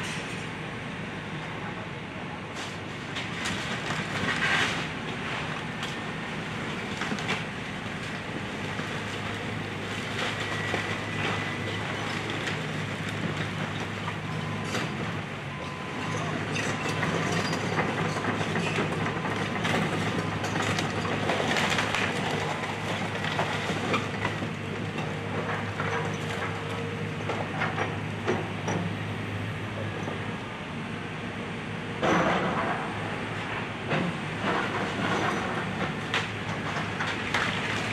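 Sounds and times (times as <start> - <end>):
debris clattering and crunching: 15.9 - 26.6.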